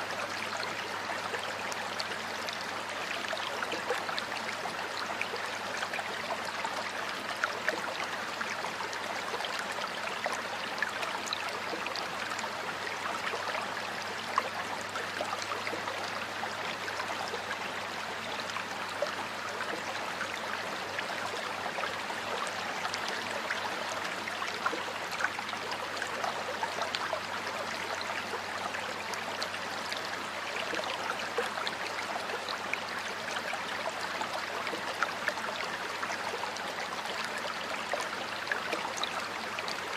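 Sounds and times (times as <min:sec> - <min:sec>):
stream water flowing and splashing: 0:00.0 - 0:39.9.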